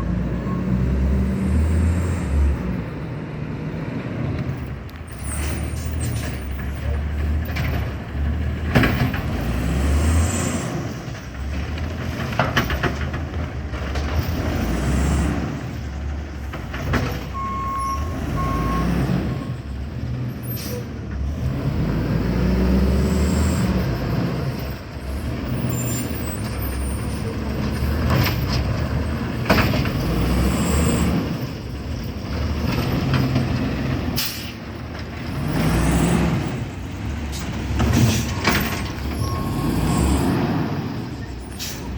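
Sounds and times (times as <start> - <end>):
garbage truck engine revving: 6.6 - 41.9
short beeps: 17.4 - 18.9
air brake hisses: 34.2 - 34.6, 41.5 - 41.9.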